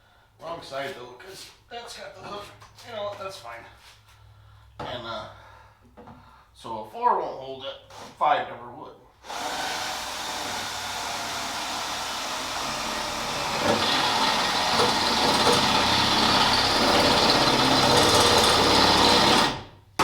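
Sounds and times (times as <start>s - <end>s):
power drill boring through steel: 9.2s - 19.7s.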